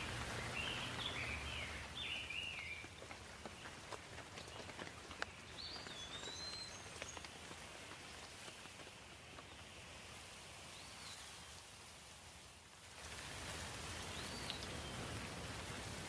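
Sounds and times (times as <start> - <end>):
water hiss: 0.0 - 2.6, 9.8 - 16.0
bird chirping: 0.0 - 2.9, 5.3 - 7.3.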